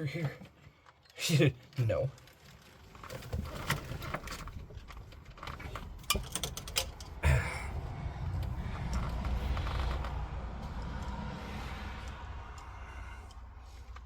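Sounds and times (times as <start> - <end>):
small clicks and light knocks: 0.4 - 7.2.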